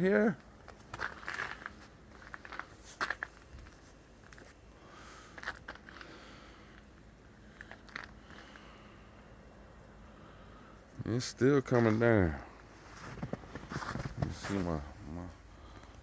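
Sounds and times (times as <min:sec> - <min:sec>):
low steady background: 0:00.0 - 0:16.0
footsteps crunching in snow: 0:12.7 - 0:14.8.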